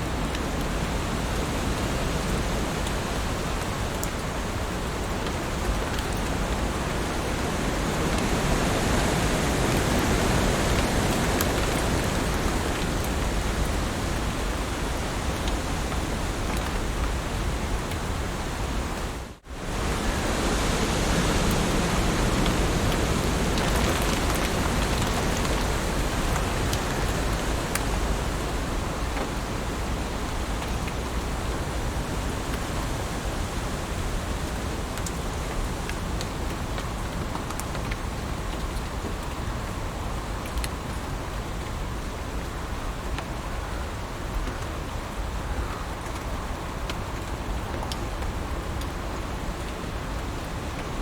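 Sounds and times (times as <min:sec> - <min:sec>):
heavy rain: 0:00.0 - 0:51.0.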